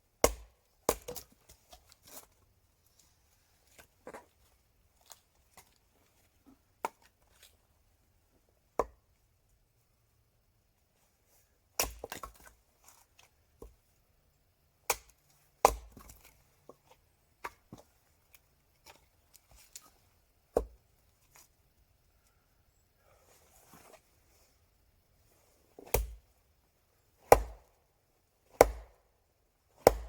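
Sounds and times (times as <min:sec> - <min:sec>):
firewood being chopped: 0:00.2 - 0:01.8, 0:11.8 - 0:12.5, 0:14.9 - 0:16.3, 0:20.5 - 0:20.8, 0:25.8 - 0:26.2, 0:27.2 - 0:27.8, 0:28.4 - 0:29.0, 0:29.7 - 0:30.0.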